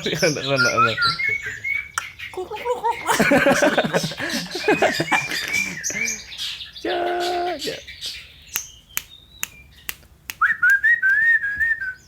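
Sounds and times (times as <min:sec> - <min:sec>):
people laughing: 0:00.0 - 0:01.8, 0:02.4 - 0:07.8
bird chirping whistled notes: 0:00.0 - 0:02.3, 0:04.4 - 0:12.0.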